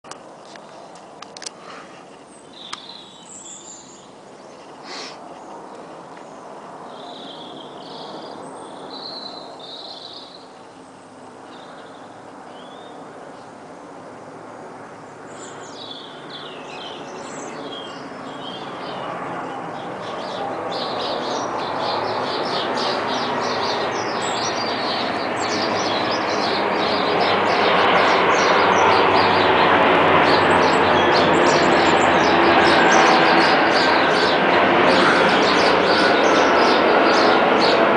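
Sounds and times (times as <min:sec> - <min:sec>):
songbirds chirping: 0:00.4 - 0:37.9
jet airliner rushing: 0:14.4 - 0:37.9.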